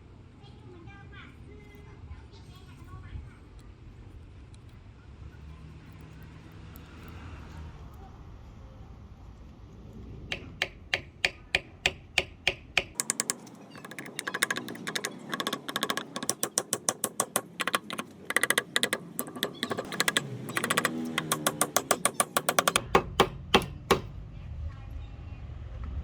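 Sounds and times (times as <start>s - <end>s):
tool tapping on wood: 10.3s - 24.1s.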